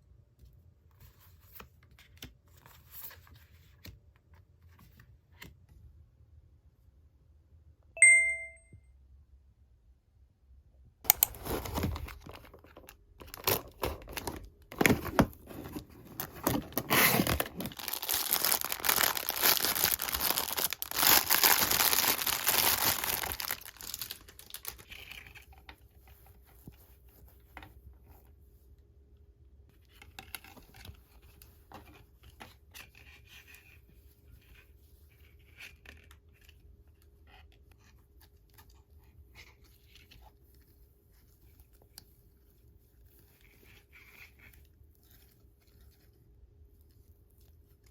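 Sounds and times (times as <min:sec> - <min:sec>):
wrapping rustling and crackling: 0:11.1 - 0:28.2
packaging being torn open: 0:13.2 - 0:15.2, 0:16.1 - 0:24.9.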